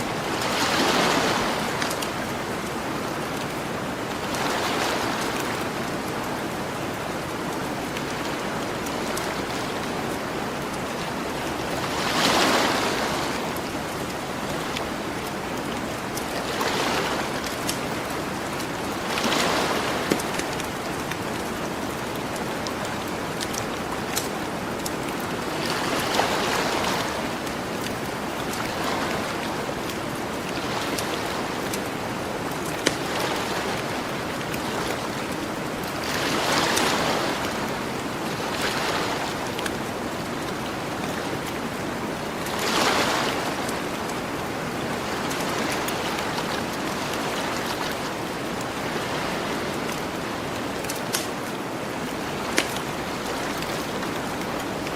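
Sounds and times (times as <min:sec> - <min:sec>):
ocean waves washing onto beach: 0:00.0 - 0:54.9
campfire crackling: 0:17.4 - 0:25.5.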